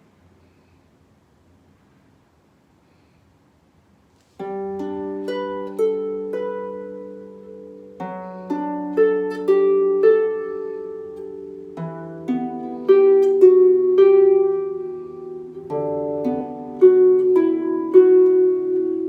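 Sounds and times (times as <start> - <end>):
harp plucked notes: 4.4 - 19.0.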